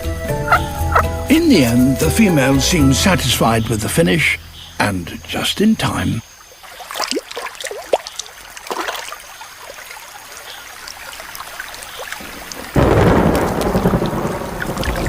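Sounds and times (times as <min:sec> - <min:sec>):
heavy rain: 0:10.8 - 0:15.0
thunder: 0:12.7 - 0:15.0.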